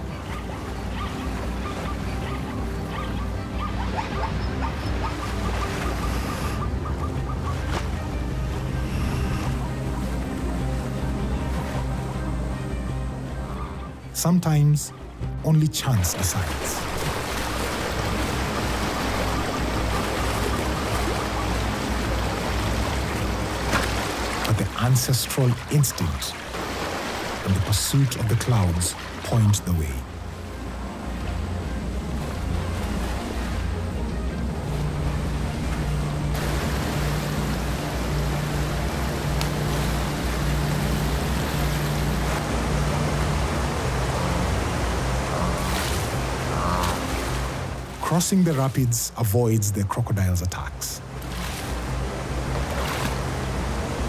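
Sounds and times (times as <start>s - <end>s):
low sustained music notes: 0.0s - 54.0s
herd splashing through river: 15.8s - 30.0s, 34.4s - 49.3s.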